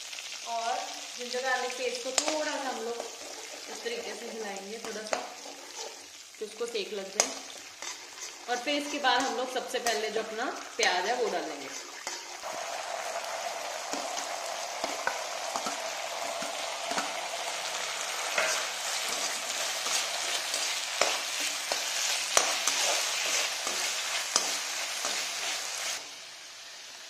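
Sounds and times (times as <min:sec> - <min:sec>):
onions sizzling in hot oil: 0:00.0 - 0:27.0
spatula clicking and scraping pan: 0:02.0 - 0:06.2, 0:07.2 - 0:12.4, 0:13.9 - 0:26.0.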